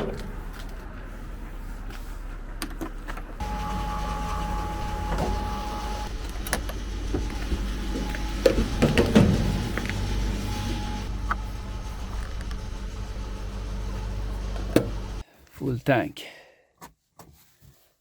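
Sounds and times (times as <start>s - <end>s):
fuel pump humming: 0.0s - 15.2s
thin whine: 3.4s - 15.2s.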